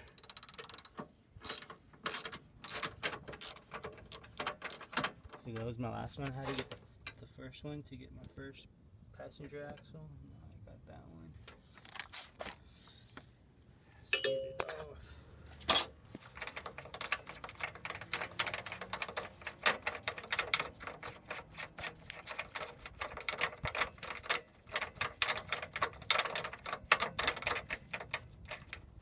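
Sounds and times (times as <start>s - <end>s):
ratchet wrench clicking: 0.0s - 5.1s, 15.7s - 28.8s.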